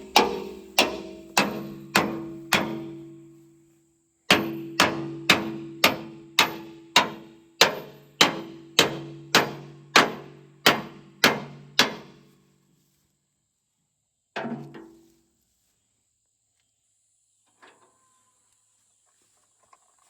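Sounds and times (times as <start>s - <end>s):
hammer striking steel: 0.0s - 3.0s, 4.3s - 12.1s.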